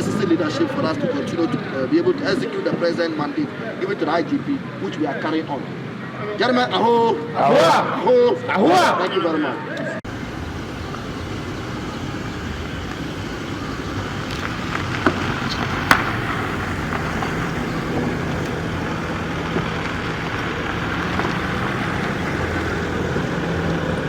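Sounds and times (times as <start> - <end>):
engine running: 10.0 - 24.0.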